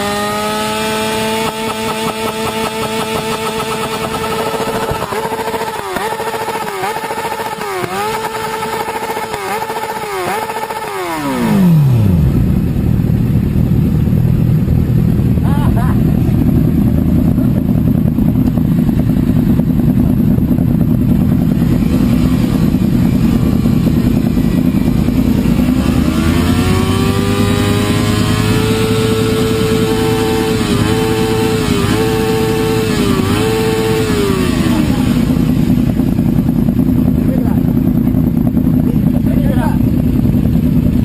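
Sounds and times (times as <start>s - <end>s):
motorcycle engine revving: 0.0s - 41.0s
steady low rumble: 11.6s - 41.0s.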